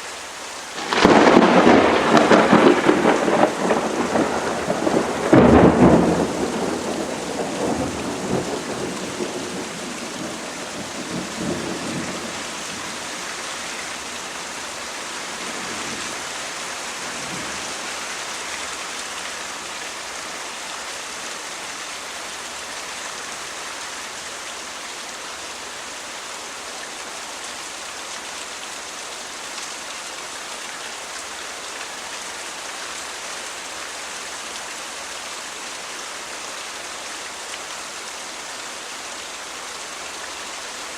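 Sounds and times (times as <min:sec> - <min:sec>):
heavy rain falling: 0:00.0 - 0:40.9
low thunder rumble: 0:00.8 - 0:13.0.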